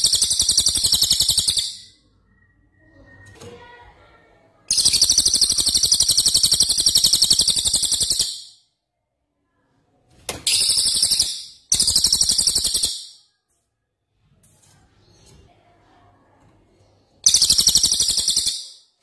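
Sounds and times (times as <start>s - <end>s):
songbird high-pitched trills: 0.0s - 3.3s, 4.7s - 8.6s, 10.5s - 13.2s, 17.2s - 18.9s.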